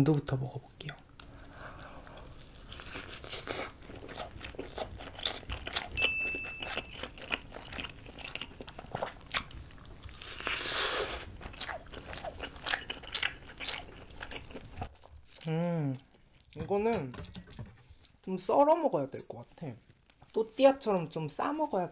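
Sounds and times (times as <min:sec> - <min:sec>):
wet chewing sounds: 0:00.8 - 0:16.6.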